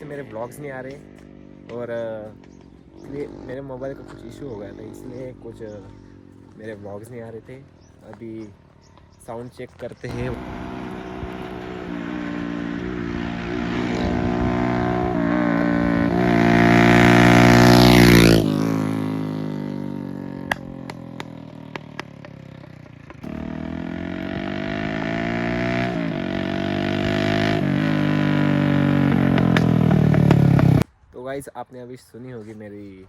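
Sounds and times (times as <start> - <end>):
motorcycle engine accelerating: 0.0 - 9.2, 10.0 - 30.8.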